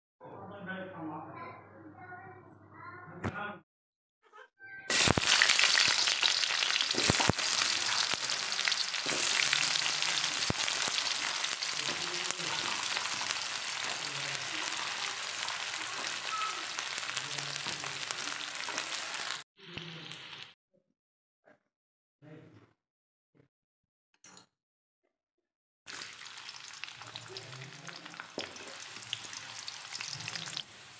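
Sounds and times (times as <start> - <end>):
onions sizzling in hot oil: 4.9 - 20.5, 25.9 - 30.9.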